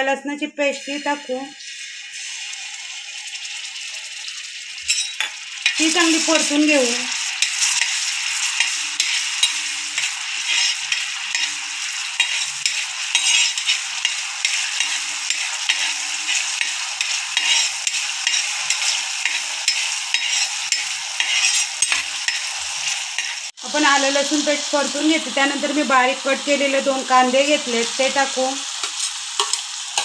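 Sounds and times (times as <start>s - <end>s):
paste sizzling in hot oil: 0.6s - 30.0s
spatula scraping and tapping pan: 7.4s - 11.6s, 12.2s - 23.5s, 28.8s - 30.0s.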